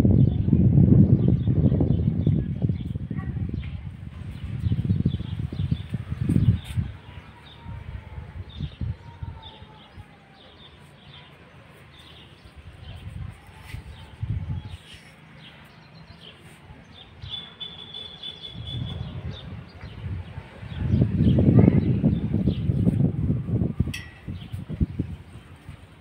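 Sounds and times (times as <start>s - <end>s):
small birds chirping: 8.4s - 23.1s
bird whistle: 17.3s - 19.1s.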